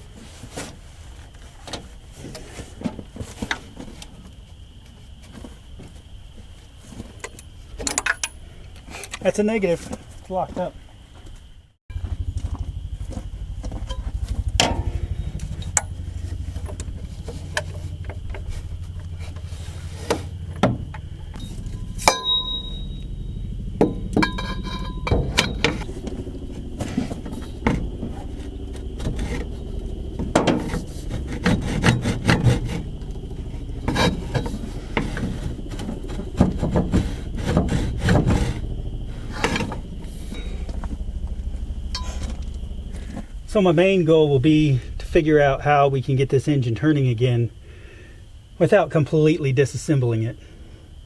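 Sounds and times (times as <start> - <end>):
steady low hum: 0.0 - 51.0
hand tools clicking and scraping: 24.1 - 26.1, 30.2 - 38.6.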